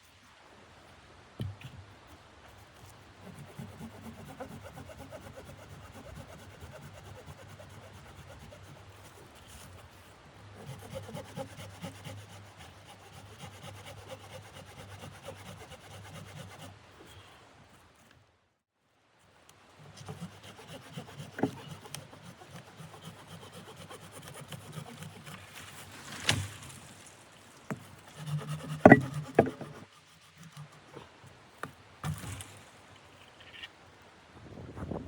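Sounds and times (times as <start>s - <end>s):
rasping scraping strokes: 3.2s - 17.3s, 19.8s - 33.7s.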